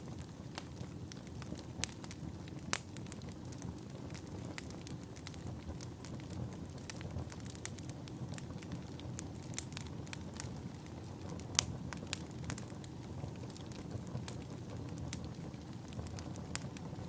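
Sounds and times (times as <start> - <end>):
fire crackling and popping: 0.0 - 17.0
fire flames rumbling: 0.0 - 17.0.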